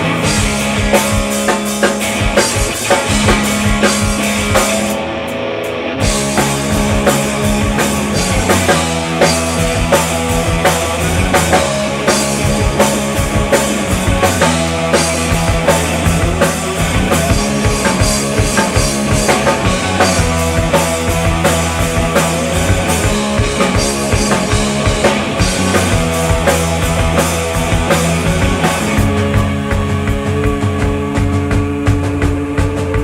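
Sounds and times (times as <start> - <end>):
rock band playing instrumental: 0.0 - 33.0.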